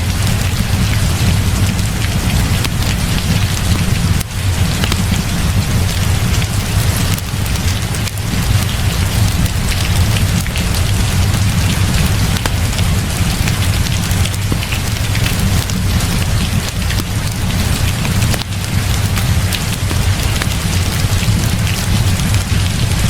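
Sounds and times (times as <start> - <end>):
heavy rain: 0.0 - 23.0
wood fire crackling: 0.0 - 23.0.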